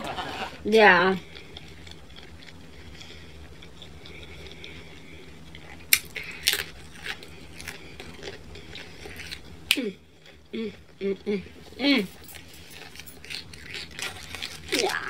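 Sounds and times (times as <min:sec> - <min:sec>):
person chewing pizza crust: 0:01.2 - 0:15.0
crunchy clicks of biting: 0:05.8 - 0:10.5.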